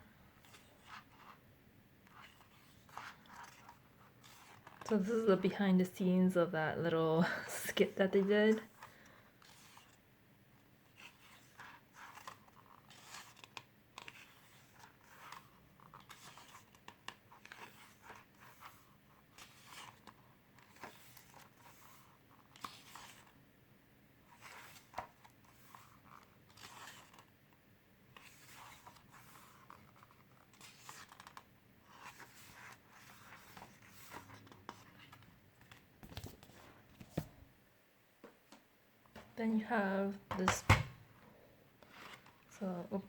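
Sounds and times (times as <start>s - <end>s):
booklet pages turning: 0.4s - 1.4s, 2.0s - 5.6s, 7.8s - 10.0s, 10.6s - 23.4s, 24.2s - 37.4s, 41.8s - 42.7s.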